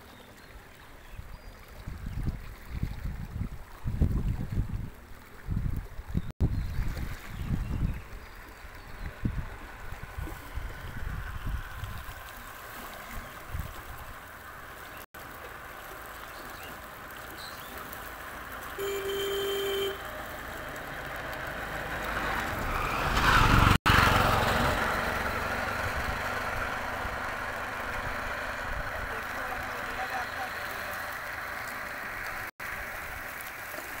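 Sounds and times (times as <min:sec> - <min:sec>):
wind buffeting microphone: 0:01.2 - 0:12.4, 0:22.3 - 0:29.2
steady engine noise: 0:18.2 - 0:32.9
vehicle horn: 0:18.8 - 0:20.1
vehicle passing close: 0:20.0 - 0:32.5.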